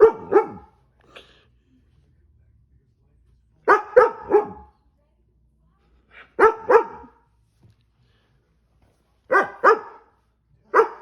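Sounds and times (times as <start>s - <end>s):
dog barking: 0.0s - 0.8s, 3.7s - 4.8s, 6.2s - 7.2s, 9.3s - 11.0s.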